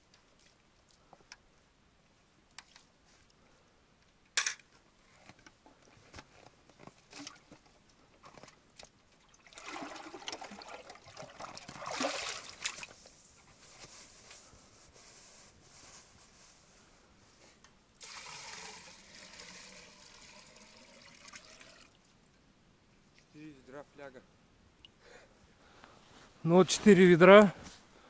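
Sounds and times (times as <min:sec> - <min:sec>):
water splashing from a bucket: 0:09.2 - 0:13.0, 0:18.0 - 0:22.0.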